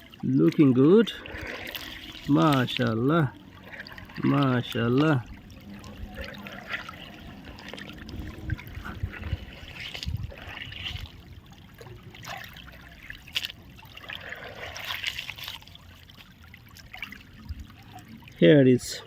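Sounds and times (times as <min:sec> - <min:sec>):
shallow water trickling and splashing: 0:00.0 - 0:19.0.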